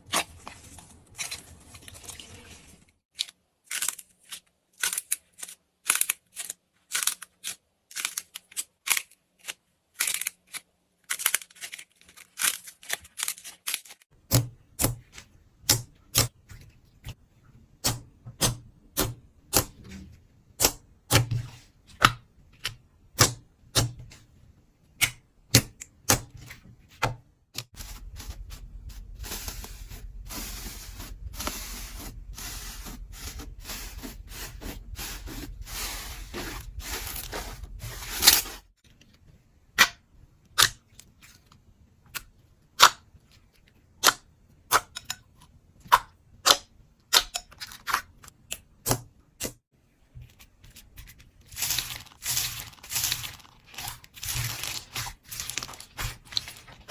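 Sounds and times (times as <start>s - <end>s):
slime squishing: 50.5s - 56.9s.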